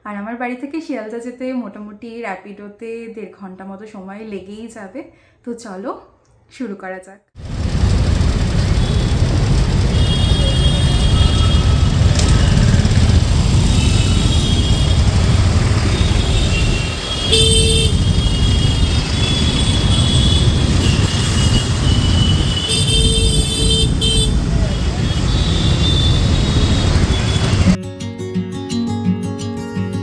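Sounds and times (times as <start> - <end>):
traffic rumble: 7.4 - 27.8
vehicle horns tooting: 8.4 - 27.8.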